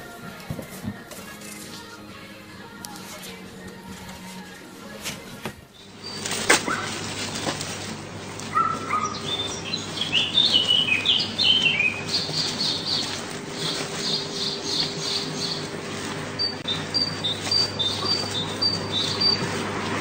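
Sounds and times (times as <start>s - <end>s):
birds chirping: 5.7s - 20.0s.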